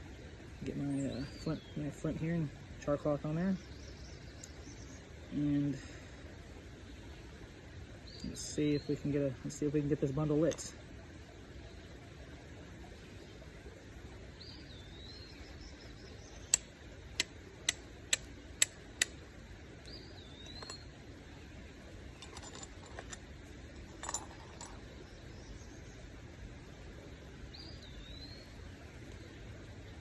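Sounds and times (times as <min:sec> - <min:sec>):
flint striking steel clicks: 0:16.5 - 0:19.2.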